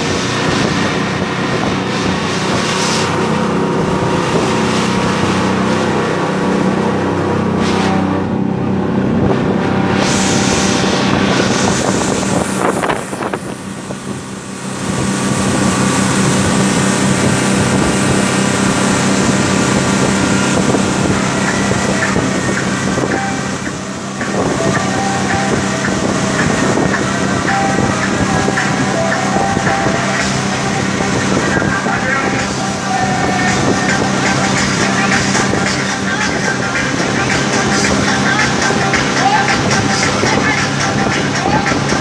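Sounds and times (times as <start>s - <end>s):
motorboat engine running: 0.0s - 42.0s
wind buffeting microphone: 0.0s - 42.0s.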